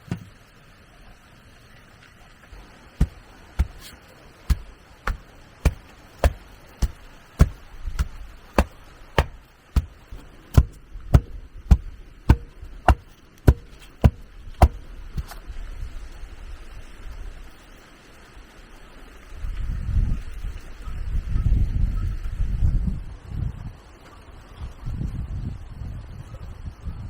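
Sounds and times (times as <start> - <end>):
hand tool striking rhythmically: 3.0 - 15.3.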